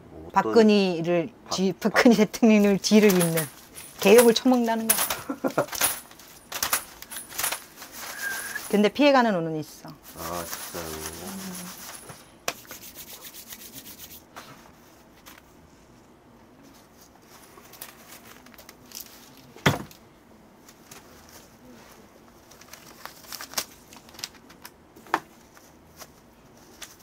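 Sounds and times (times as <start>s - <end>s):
hands rubbing and rustling: 2.6s - 8.9s, 9.9s - 15.5s, 25.3s - 27.0s.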